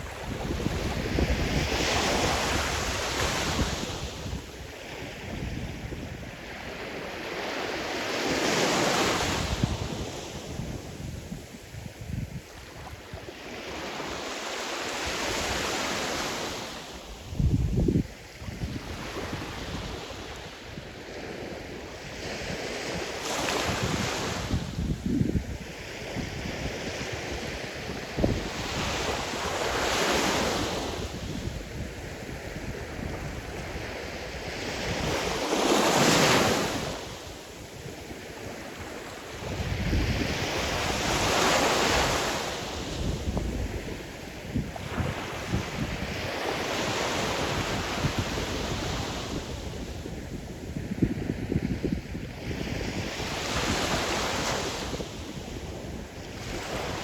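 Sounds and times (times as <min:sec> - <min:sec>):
wind buffeting microphone: 0:00.0 - 0:06.7, 0:09.2 - 0:13.2, 0:17.2 - 0:38.7, 0:39.3 - 0:57.0
waves breaking on shore: 0:18.1 - 0:50.8.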